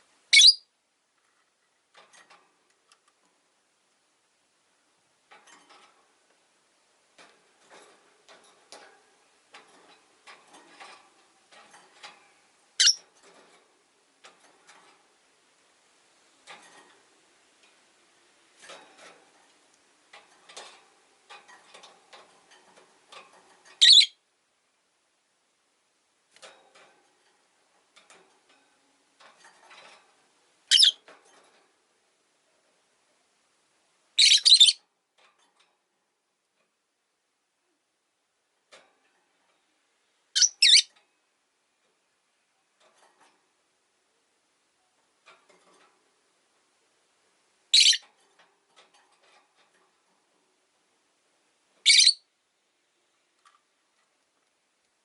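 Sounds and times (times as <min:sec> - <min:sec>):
shrill bird chirp: 0:00.3 - 0:00.7, 0:23.8 - 0:24.2, 0:30.7 - 0:31.0, 0:34.2 - 0:34.8, 0:47.8 - 0:48.0, 0:51.9 - 0:52.2.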